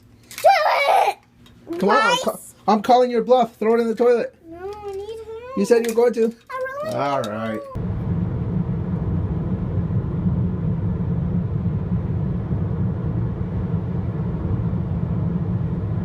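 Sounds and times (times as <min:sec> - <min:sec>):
steady low rumble: 0:07.8 - 0:16.0.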